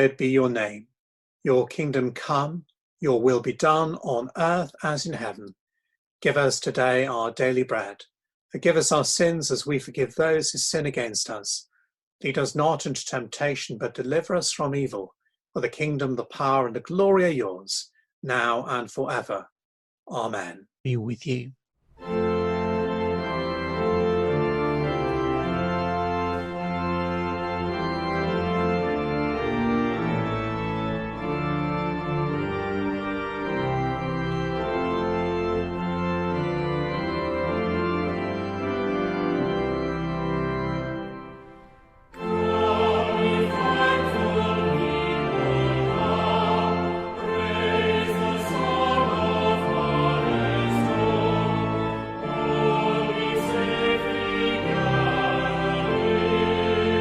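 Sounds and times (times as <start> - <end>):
church organ chords: 0.0 - 0.7, 22.0 - 57.0
congregation singing a hymn: 42.1 - 57.0.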